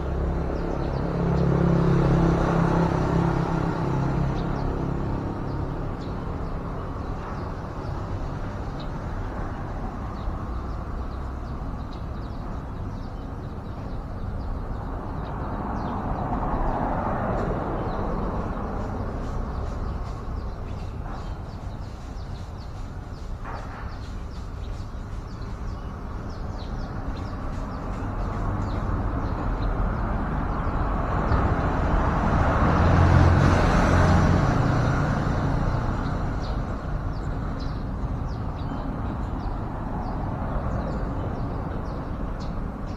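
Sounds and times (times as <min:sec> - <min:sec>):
road traffic rumble: 0:00.0 - 0:42.9.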